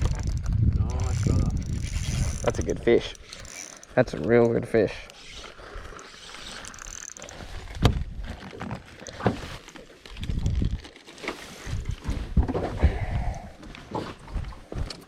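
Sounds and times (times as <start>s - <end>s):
low handling rumbles: 0.0s - 4.4s
fishing reel mechanical noise: 0.0s - 7.8s.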